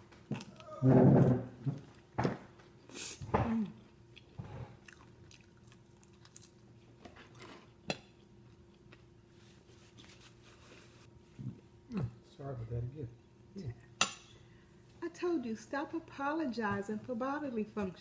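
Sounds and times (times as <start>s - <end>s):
chewing and biting food: 3.6s - 9.1s.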